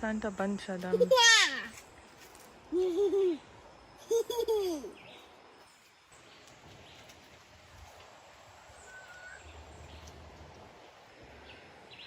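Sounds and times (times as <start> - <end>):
soft outdoor hiss: 0.0 - 12.0
bird chirp: 8.6 - 10.2.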